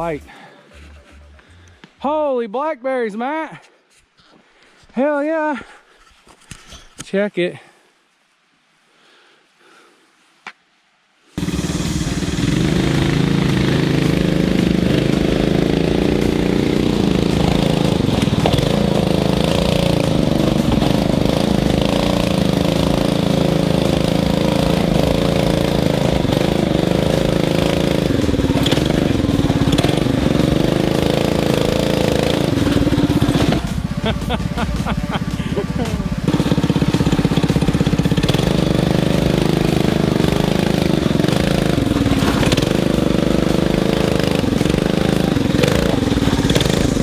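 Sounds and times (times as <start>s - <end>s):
small motorbike engine running: 11.4s - 47.0s.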